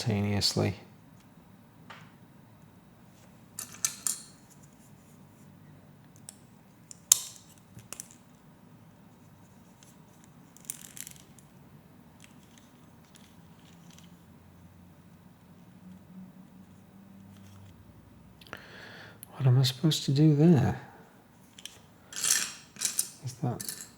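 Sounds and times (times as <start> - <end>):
plastic pieces clicking and rattling: 10.6 - 11.5.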